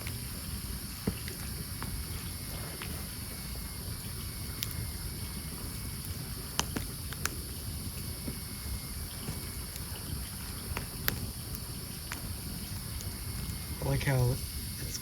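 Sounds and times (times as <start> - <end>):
sharp pops from logs: 0.0 - 3.2, 6.0 - 13.6
campfire crackling: 0.0 - 15.0.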